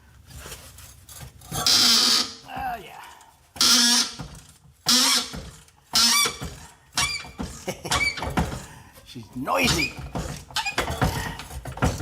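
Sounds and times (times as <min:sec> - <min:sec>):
rusty bolt squealing: 0:01.1 - 0:02.5, 0:03.6 - 0:08.6, 0:09.5 - 0:12.0.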